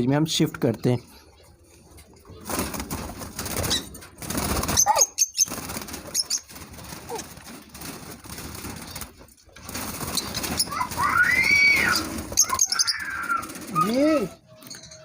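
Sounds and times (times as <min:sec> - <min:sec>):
birds flapping wings: 0:02.4 - 0:14.4
high bird chirps: 0:04.6 - 0:06.5, 0:10.1 - 0:15.0.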